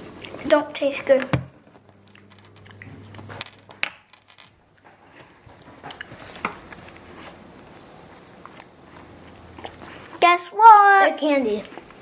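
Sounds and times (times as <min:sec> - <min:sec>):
chewing and crunching hard candy: 0:01.8 - 0:10.2.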